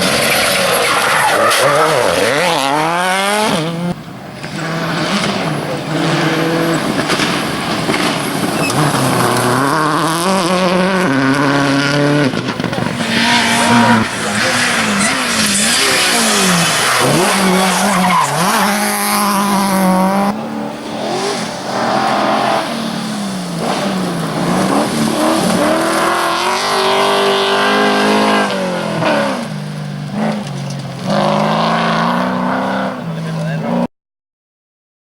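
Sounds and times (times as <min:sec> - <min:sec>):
rally car engines revving hard: 0:00.0 - 0:33.9
tyre and road noise: 0:00.0 - 0:33.9.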